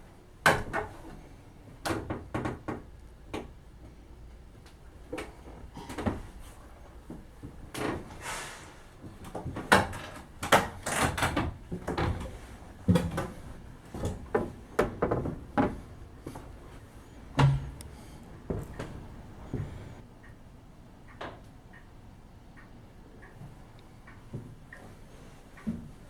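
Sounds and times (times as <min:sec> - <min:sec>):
knocks and clunks: 0:09.6 - 0:15.9, 0:17.3 - 0:20.0.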